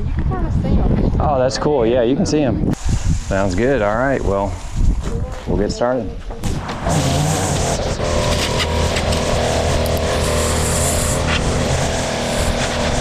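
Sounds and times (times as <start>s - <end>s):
power equipment engine drone: 6.4s - 13.0s.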